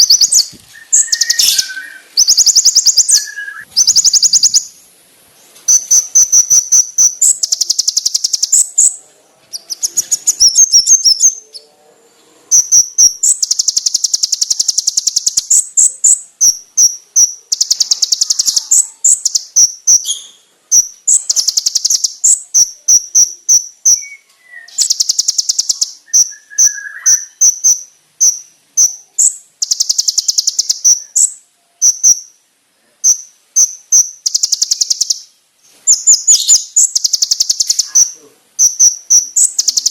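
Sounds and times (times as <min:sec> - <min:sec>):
sharp chipping bird notes: 0:00.0 - 0:04.8, 0:05.7 - 0:11.7
bird singing rapid trills: 0:00.0 - 0:04.9, 0:05.7 - 0:11.7, 0:12.5 - 0:32.4, 0:33.0 - 0:39.9.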